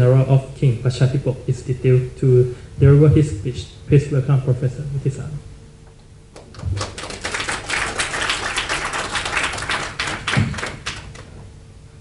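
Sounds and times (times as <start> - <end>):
audience applauding: 6.4 - 11.3.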